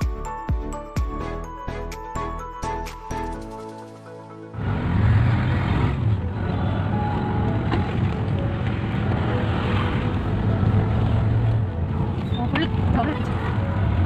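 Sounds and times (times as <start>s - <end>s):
road traffic noise: 3.2s - 14.0s
vehicle engine humming: 4.2s - 14.0s.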